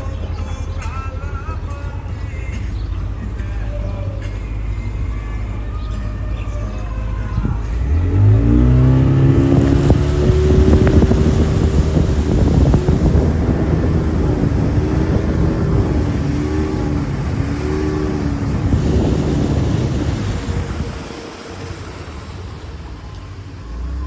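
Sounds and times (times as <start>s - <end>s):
racing motorboat engine: 0.0s - 24.0s
loud rushing noise: 7.4s - 23.8s.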